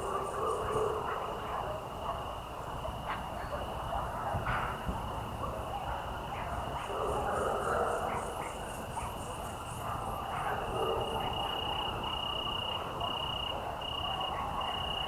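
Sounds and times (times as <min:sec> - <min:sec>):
frog chorus: 0:00.0 - 0:15.0
pulsed cricket chirping: 0:07.9 - 0:15.0.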